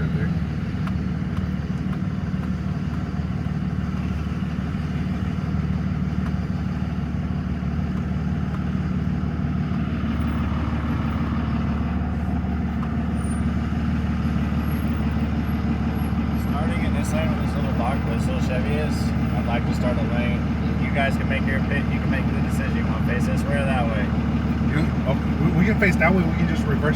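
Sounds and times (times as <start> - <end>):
diesel truck engine running: 0.0 - 26.9.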